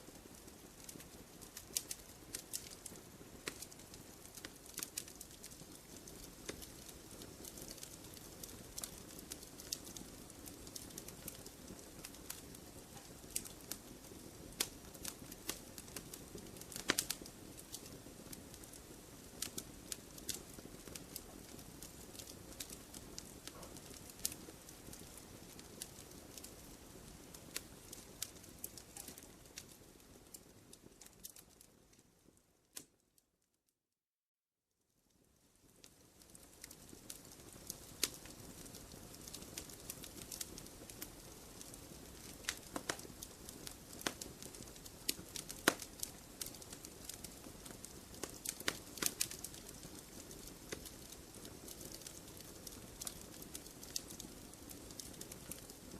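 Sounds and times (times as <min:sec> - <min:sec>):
campfire crackling and popping: 0:00.1 - 0:33.0, 0:35.2 - 0:55.9.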